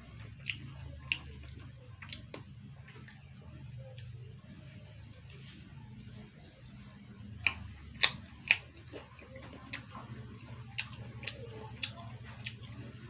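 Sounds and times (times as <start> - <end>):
low steady hum: 0.0 - 13.0
crunching while eating fruit: 5.9 - 13.0.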